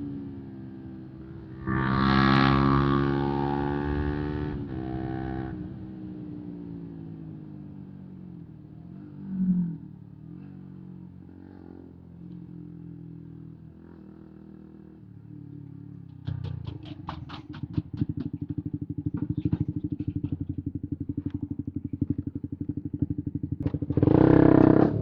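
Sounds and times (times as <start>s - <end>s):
motorcycle engine revving: 0.0s - 8.2s, 8.8s - 25.0s
sharp ticks or pops: 16.0s - 20.6s.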